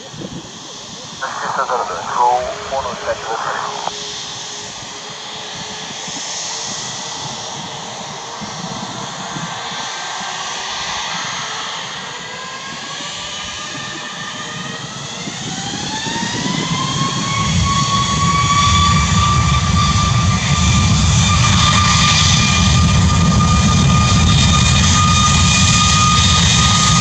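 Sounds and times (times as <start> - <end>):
jet engines spooling up: 1.2 - 4.0.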